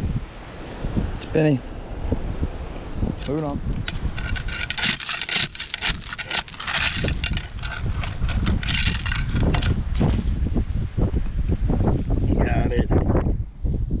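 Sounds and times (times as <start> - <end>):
wind buffeting microphone: 0.0 - 14.0
scraping and rustling: 3.2 - 10.3.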